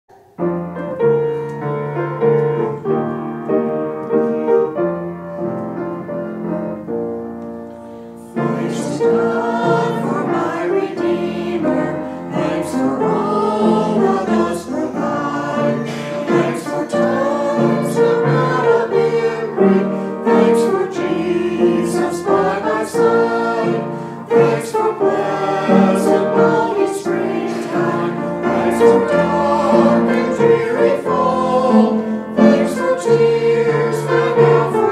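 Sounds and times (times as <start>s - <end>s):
piano playing: 0.1s - 34.9s
choir singing: 7.9s - 34.9s.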